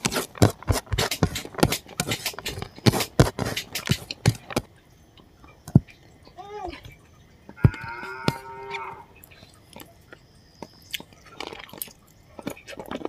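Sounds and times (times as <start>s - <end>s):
chewing and lip-smacking: 9.2s - 13.0s.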